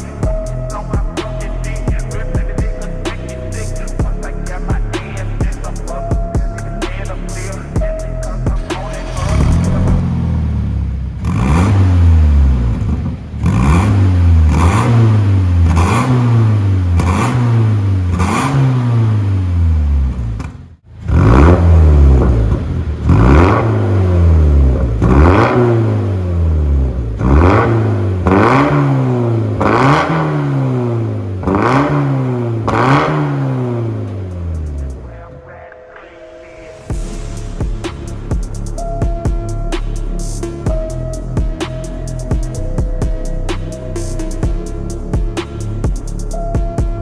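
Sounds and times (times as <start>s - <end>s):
car engine revving: 8.5s - 35.6s.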